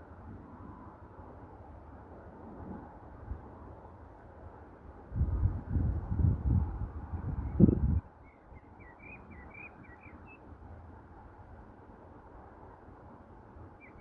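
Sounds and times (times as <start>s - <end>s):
songbird chirping: 7.5s - 10.5s, 13.8s - 14.0s.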